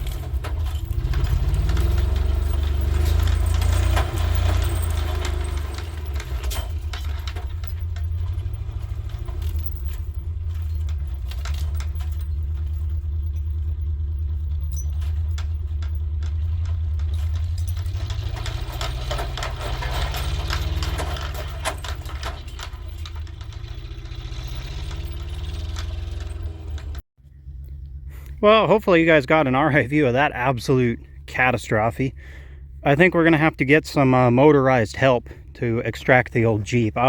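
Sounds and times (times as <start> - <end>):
metallic clinking and rattling: 0.0 - 28.0
truck engine running under load: 0.0 - 37.0.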